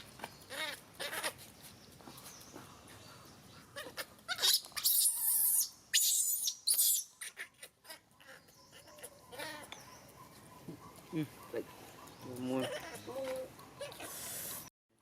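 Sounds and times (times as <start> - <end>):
macaque screaming: 3.8 - 7.5, 12.5 - 14.2.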